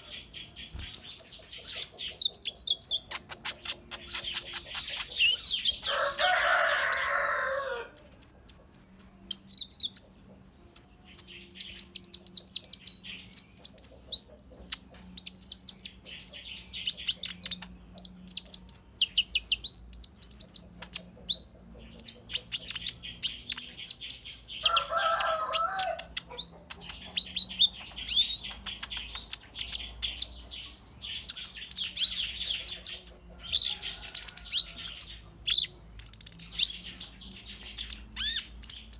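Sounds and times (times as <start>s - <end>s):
bird singing chirps and whistles: 0.7s - 5.9s, 34.3s - 38.9s.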